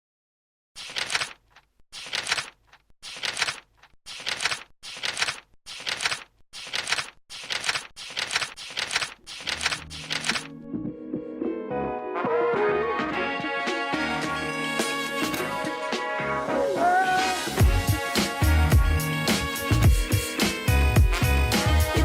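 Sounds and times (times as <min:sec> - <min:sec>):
short sharp noise bursts: 0:00.8 - 0:10.5
music: 0:10.4 - 0:22.0.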